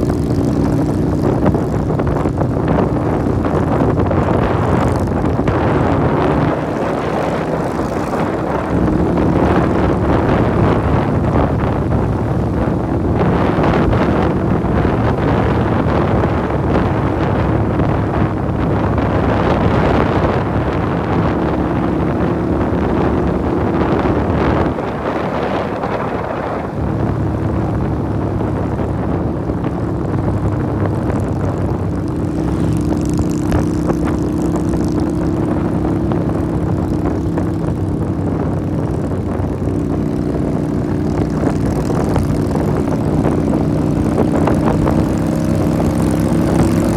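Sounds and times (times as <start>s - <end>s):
motorcycle engine running: 0.0s - 46.9s
wind rush: 0.0s - 46.9s.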